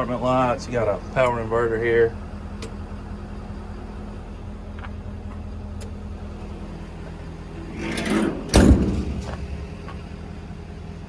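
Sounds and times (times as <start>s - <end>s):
steady low hum: 0.0s - 11.0s
metal door clank: 7.4s - 10.2s
metal door scraping swish: 7.5s - 10.0s.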